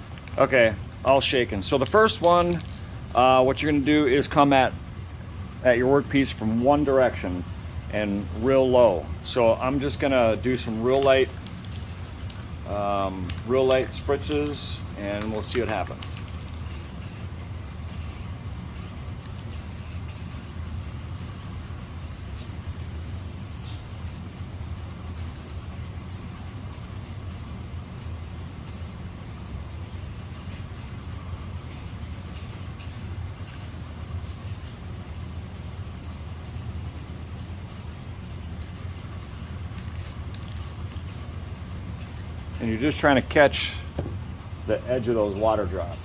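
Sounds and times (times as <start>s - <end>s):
low background hum: 0.0s - 46.0s
spray paint can spritzes: 10.9s - 12.4s, 16.4s - 17.3s, 17.9s - 28.9s, 29.9s - 31.0s, 31.7s - 33.8s, 34.5s - 35.4s, 36.0s - 41.3s.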